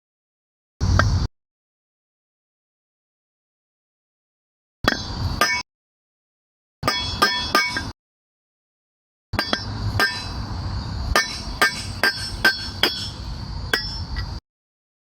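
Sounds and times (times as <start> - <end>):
hammer striking chisel on metal: 4.9 - 5.6, 6.8 - 7.9, 9.4 - 10.4, 11.1 - 14.2.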